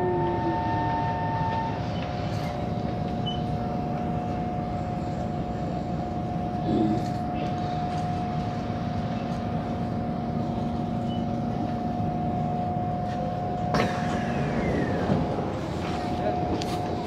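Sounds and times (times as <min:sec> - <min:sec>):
constant hum: 0:00.0 - 0:17.0
train rumble: 0:00.0 - 0:17.0
falling whine: 0:10.9 - 0:17.0.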